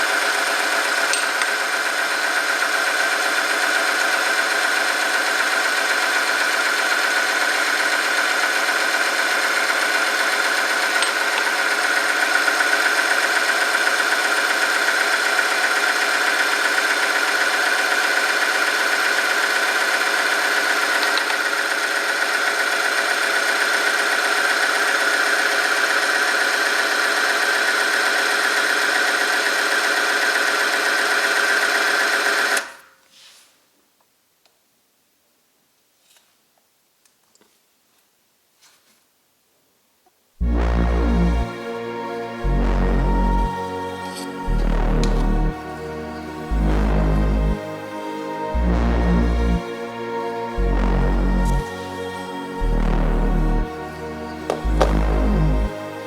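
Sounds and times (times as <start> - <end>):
machine whine and drone: 40.4 - 56.0.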